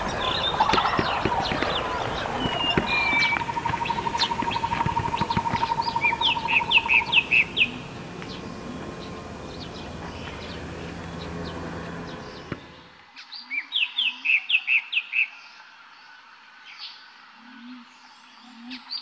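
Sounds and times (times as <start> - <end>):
rapid bird trill: 0.0 - 12.9
small birds chirping: 0.0 - 15.5.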